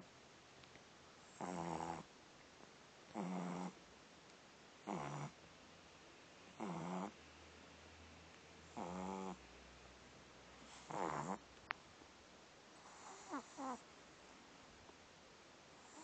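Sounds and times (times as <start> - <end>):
puppy snoring: 1.3 - 2.1, 3.1 - 3.8, 4.8 - 5.4, 6.5 - 7.2, 8.7 - 9.4, 10.7 - 11.4, 12.8 - 13.8, 15.8 - 16.0.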